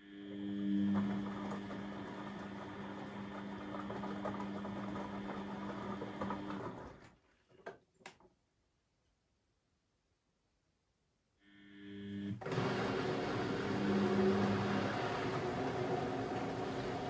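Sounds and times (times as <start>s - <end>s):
washing machine running: 0.3s - 7.2s, 12.3s - 17.0s.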